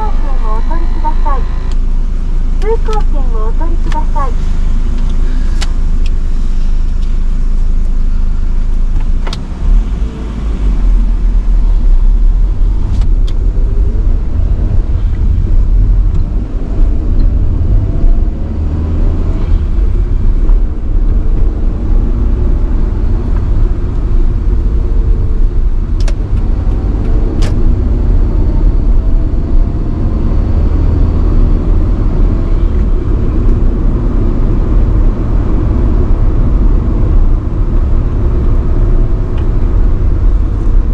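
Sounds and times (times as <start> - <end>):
car engine running: 0.0 - 40.9
road rumble: 0.0 - 40.9
sharp clicks: 26.0 - 27.6.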